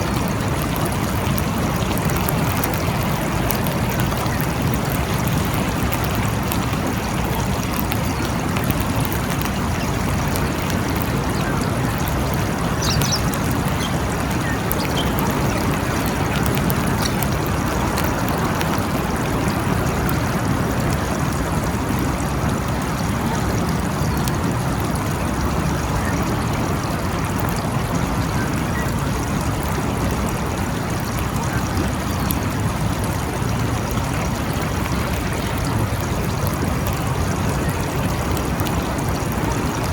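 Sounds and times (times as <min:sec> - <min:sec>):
steady rain falling: 0:00.0 - 0:39.9
faint high chirps: 0:11.3 - 0:17.4.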